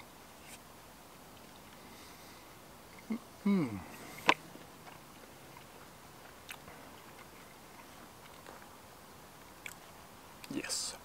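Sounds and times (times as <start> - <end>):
quiet chewing: 1.3 - 10.6.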